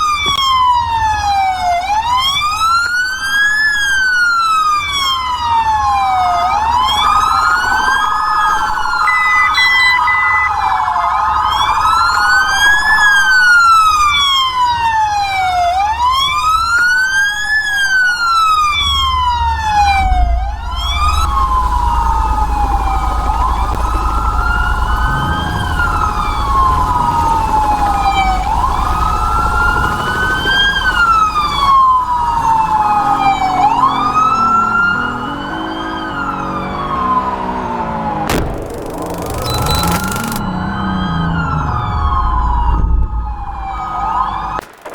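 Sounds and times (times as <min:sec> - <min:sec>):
engine and road noise rumble: 0:00.0 - 0:44.6
police sirens wailing: 0:00.0 - 0:44.8.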